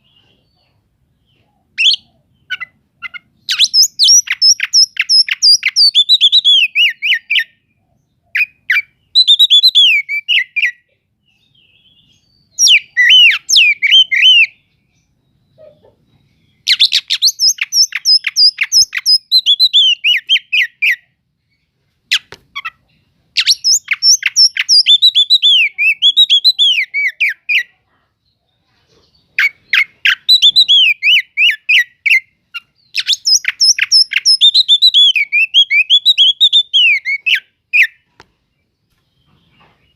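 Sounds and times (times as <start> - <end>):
magpie-robin singing: 0.0 - 38.2.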